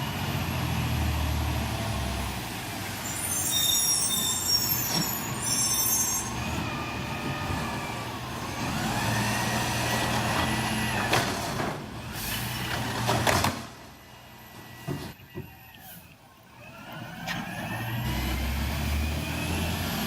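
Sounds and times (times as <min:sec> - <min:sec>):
garbage truck running: 0:00.0 - 0:20.0
high squeals: 0:03.0 - 0:07.8.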